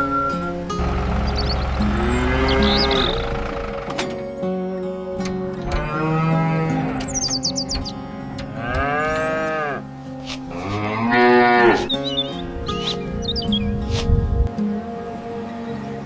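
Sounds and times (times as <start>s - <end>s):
background music: 0.0s - 16.0s
high bird chirps: 0.8s - 3.8s
cow mooing: 0.8s - 4.0s, 8.6s - 9.9s, 10.5s - 12.0s.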